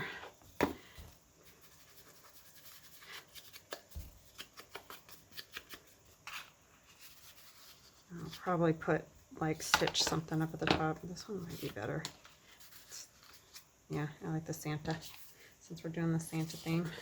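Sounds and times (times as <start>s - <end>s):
dabs and scratches on paper: 1.4s - 8.6s, 11.3s - 13.6s, 16.1s - 17.0s.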